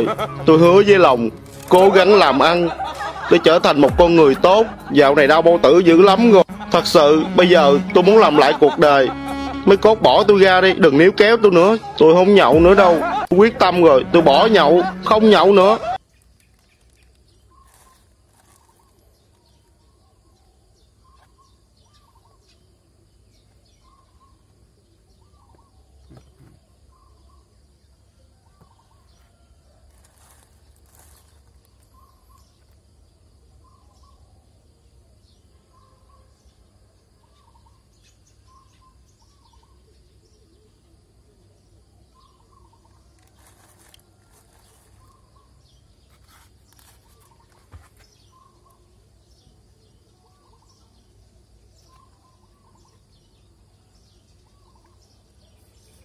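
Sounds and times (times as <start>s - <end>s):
plastic bag crinkling: 1.3s - 2.2s, 16.1s - 19.4s, 29.9s - 32.0s, 43.2s - 45.3s.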